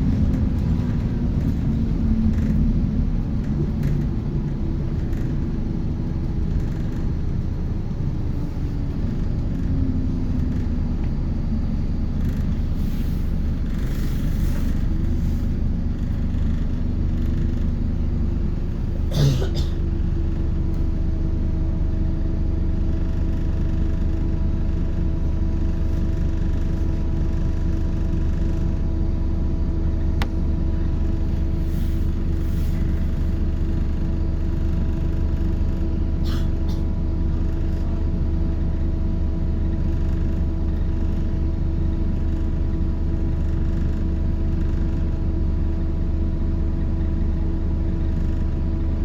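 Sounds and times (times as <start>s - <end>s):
bus engine low rumble: 0.0s - 49.0s.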